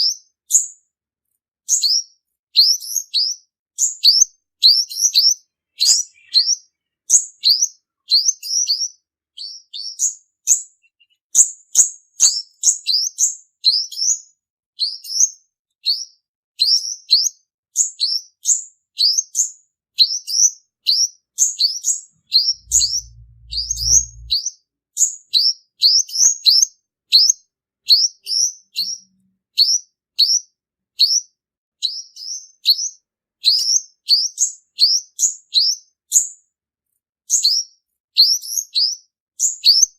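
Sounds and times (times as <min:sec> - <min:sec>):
bird chirping rapidly: 0:02.8 - 0:08.8, 0:21.5 - 0:24.4
brief low hum: 0:22.3 - 0:24.4.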